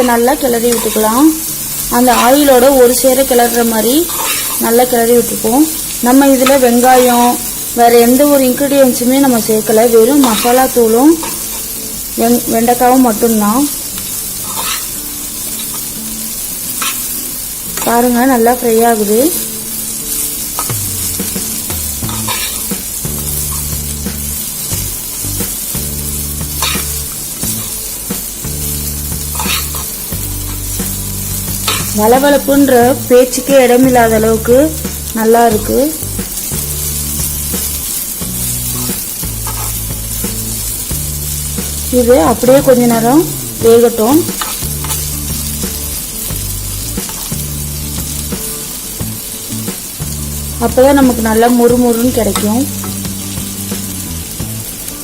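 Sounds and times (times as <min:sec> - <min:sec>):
spatula scraping pan: 0:00.0 - 0:07.6, 0:08.9 - 0:11.8, 0:14.0 - 0:16.0, 0:16.7 - 0:17.2, 0:19.3 - 0:32.6, 0:36.5 - 0:40.7, 0:41.6 - 0:46.1
okra sizzling in oil: 0:00.0 - 0:55.0
background music with bass: 0:20.6 - 0:55.0.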